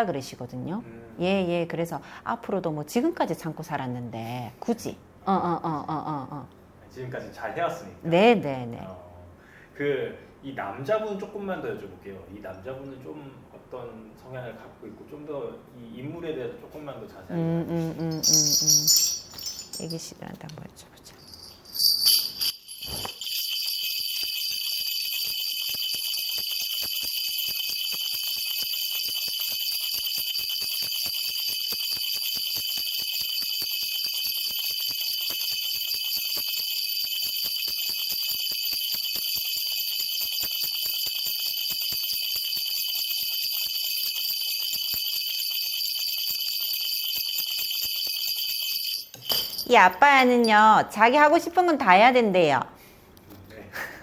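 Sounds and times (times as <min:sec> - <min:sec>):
bell cluster jingling: 0:17.8 - 0:20.2, 0:21.2 - 0:51.1.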